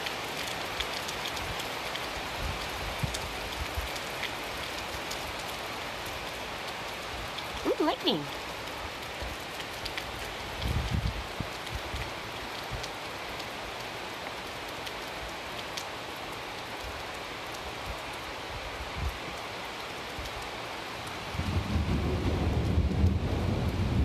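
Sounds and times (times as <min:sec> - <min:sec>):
steady rain: 0:00.0 - 0:24.0
low thunder rumble: 0:21.3 - 0:24.0.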